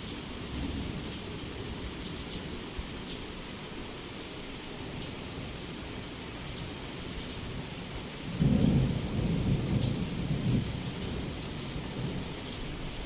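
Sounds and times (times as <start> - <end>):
heavy rain falling: 0.0 - 13.0
low rumble of thunder: 0.4 - 2.1, 7.4 - 13.0.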